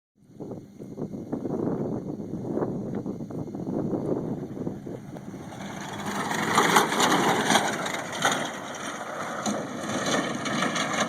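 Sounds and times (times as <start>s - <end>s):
truck crunching and splintering: 5.0s - 11.0s.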